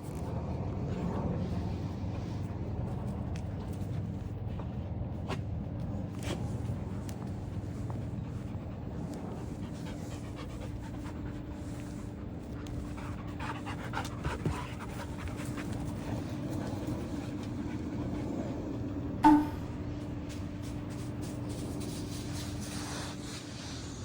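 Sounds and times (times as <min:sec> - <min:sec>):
large dog panting: 0:07.2 - 0:19.0
low hum: 0:16.5 - 0:21.9.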